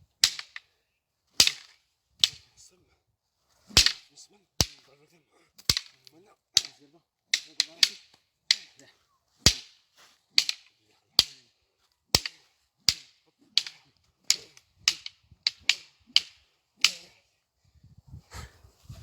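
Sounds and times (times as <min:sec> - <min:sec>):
wooden sticks clacking: 0:00.2 - 0:00.7, 0:01.4 - 0:02.6, 0:03.7 - 0:04.9, 0:05.6 - 0:17.3.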